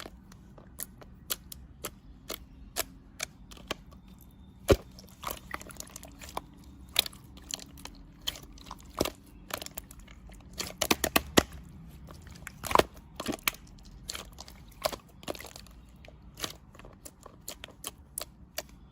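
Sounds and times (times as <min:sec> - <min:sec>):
sharp clicks and taps: 0:00.0 - 0:04.0.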